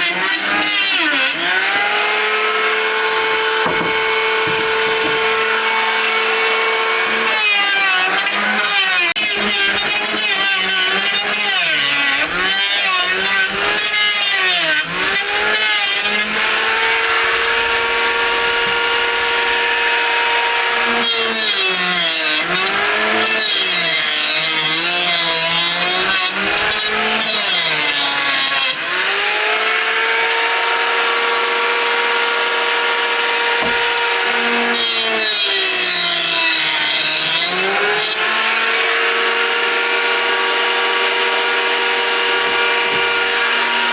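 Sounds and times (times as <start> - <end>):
power saw cutting wood: 0.0 - 43.9.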